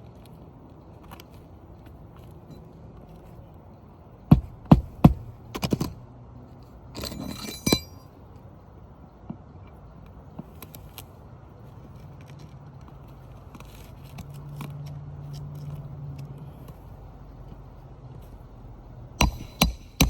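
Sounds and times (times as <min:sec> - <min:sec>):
metallic clinking scrape: 0:06.9 - 0:08.2
sharp knocks: 0:19.2 - 0:20.0.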